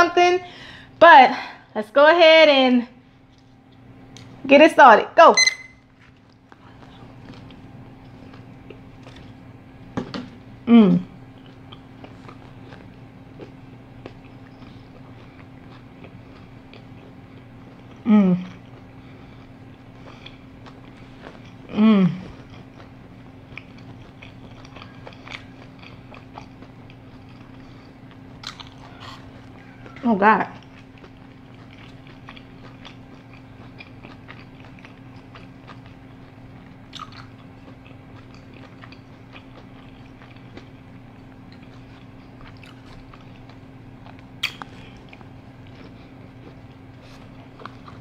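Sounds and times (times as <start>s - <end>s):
steady low hum: 0.0s - 48.0s
person chewing: 6.0s - 9.5s, 11.2s - 48.0s
wet mouth clicks: 44.4s - 44.8s.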